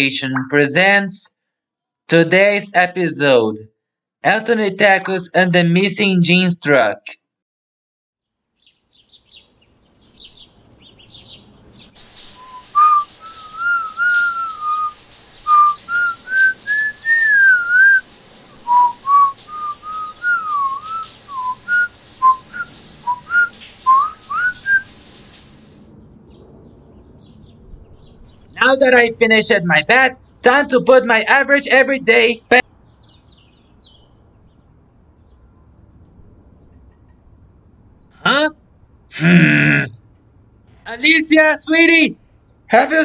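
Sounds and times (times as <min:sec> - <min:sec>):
steady hiss: 0:11.9 - 0:25.9
person whistling a tune: 0:12.4 - 0:18.0, 0:18.7 - 0:24.9.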